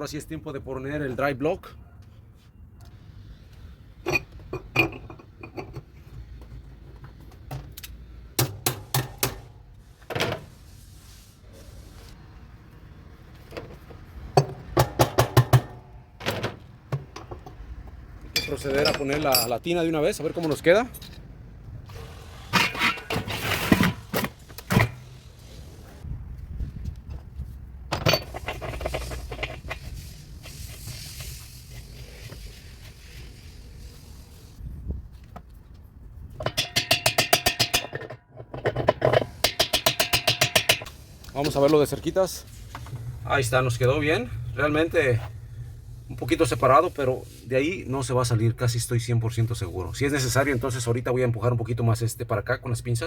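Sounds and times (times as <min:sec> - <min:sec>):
low hum: 0:42.5 - 0:47.0.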